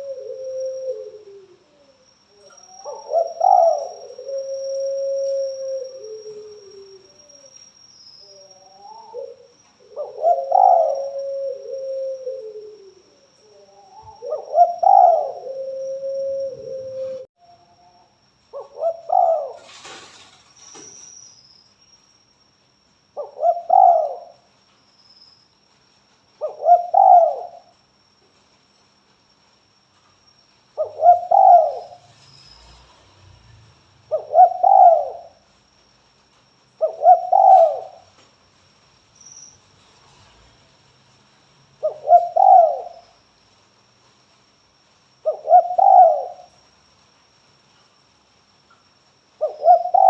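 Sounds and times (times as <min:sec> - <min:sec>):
dove cooing: 0:00.0 - 0:07.6, 0:08.3 - 0:17.3, 0:18.6 - 0:20.2, 0:23.2 - 0:24.4, 0:26.4 - 0:27.7, 0:30.8 - 0:32.0, 0:34.1 - 0:35.4, 0:36.8 - 0:38.1, 0:41.8 - 0:43.0, 0:45.2 - 0:46.5, 0:49.4 - 0:50.0
faint high whine: 0:00.0 - 0:26.2.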